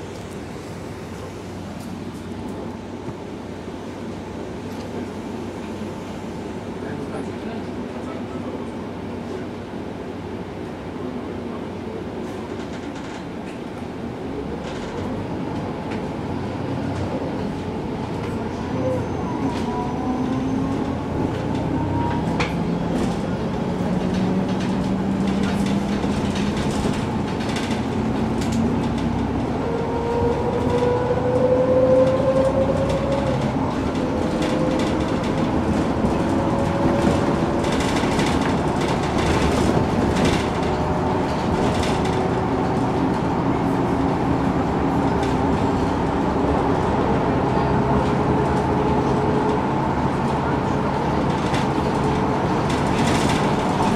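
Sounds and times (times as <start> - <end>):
bus engine whining: 0.0 - 53.9
rattles and clicks: 32.9 - 42.9.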